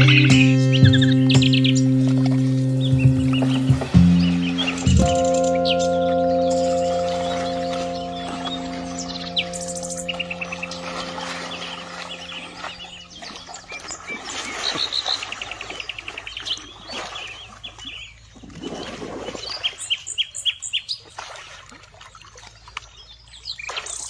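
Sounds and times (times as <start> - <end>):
soft music: 0.0 - 13.7
birds chirping and trilling: 0.0 - 18.4.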